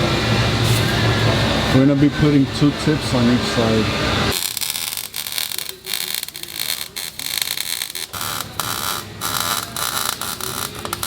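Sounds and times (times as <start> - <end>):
welding crackling and buzzing: 4.3 - 11.0.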